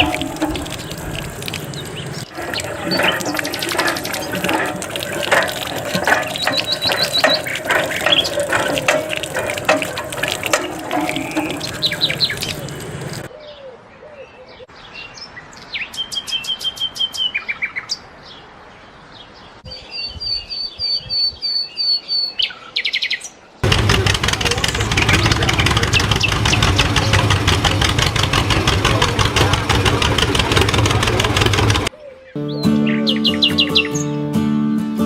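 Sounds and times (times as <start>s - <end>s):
birds chirping and singing: 0.0s - 18.4s, 24.8s - 27.6s, 31.8s - 34.3s.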